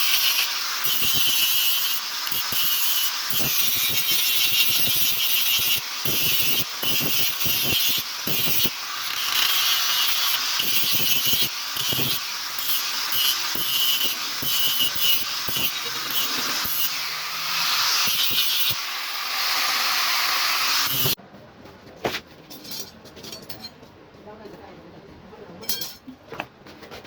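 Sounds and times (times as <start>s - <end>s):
hand tool rasping metal: 0.0s - 21.2s.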